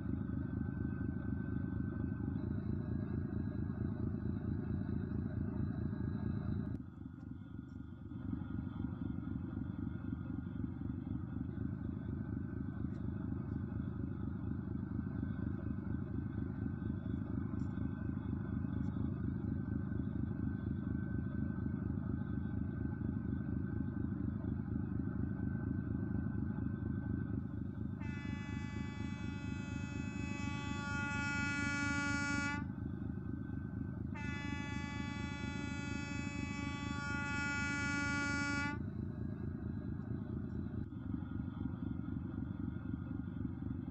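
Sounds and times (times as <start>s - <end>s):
engine running with low rumble: 0.0s - 43.9s
loud horn blowing: 27.9s - 39.1s.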